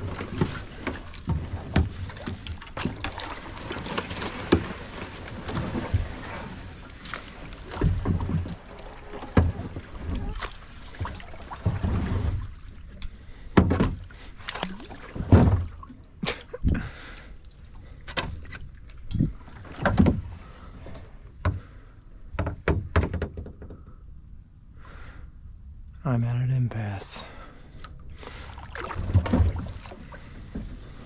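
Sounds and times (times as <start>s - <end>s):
paddle knocking against hull: 0.0s - 12.6s, 13.5s - 15.9s, 19.2s - 20.4s, 21.0s - 24.0s, 28.8s - 31.0s
paddle splashing in water: 0.0s - 21.6s, 28.1s - 31.0s.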